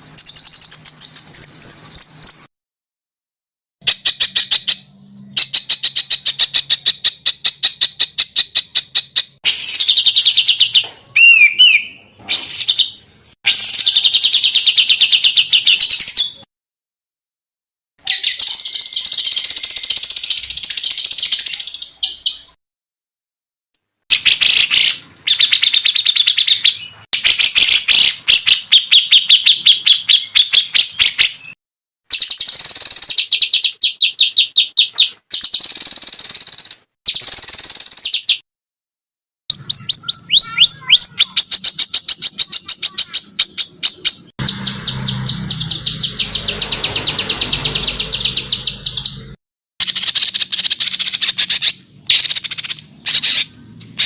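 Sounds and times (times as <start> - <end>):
buzzy bird trill: 0.0 - 2.5, 18.0 - 22.5, 24.1 - 38.4, 39.5 - 54.0.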